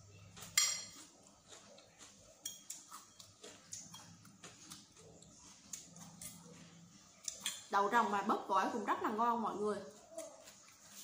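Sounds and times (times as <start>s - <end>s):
person chewing: 0.0s - 7.6s, 9.9s - 11.0s
cutlery clicking on ceramic plate: 2.4s - 4.8s.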